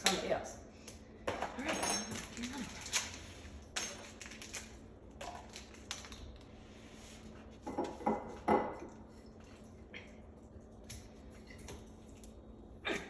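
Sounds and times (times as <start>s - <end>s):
kitchenware clattering: 1.3s - 3.1s, 7.6s - 9.0s
kitchenware clinking: 1.3s - 3.1s.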